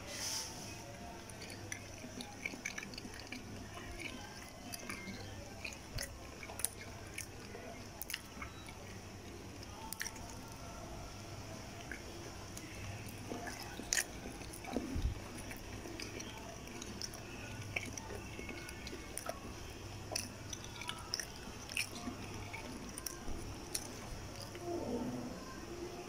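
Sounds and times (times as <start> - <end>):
person chewing soft food: 0.7 - 24.8
wet mouth clicks: 1.2 - 8.8, 9.9 - 10.4, 11.8 - 24.6.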